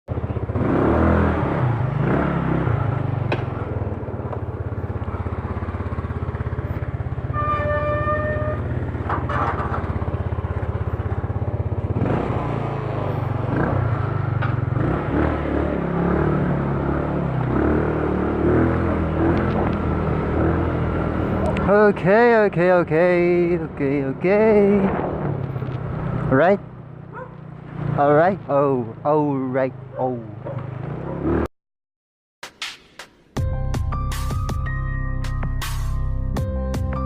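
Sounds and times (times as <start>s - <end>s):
scooter engine running: 0.1s - 22.3s
traffic: 0.1s - 31.5s.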